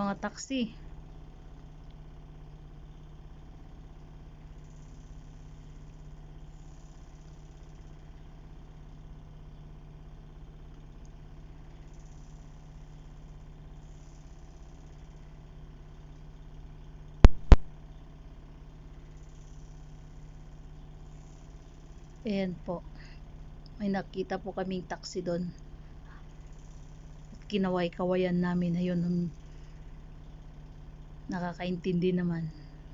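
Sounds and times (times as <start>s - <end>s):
sharp clicks: 17.2s - 17.8s
vehicle engines idling: 22.2s - 32.9s.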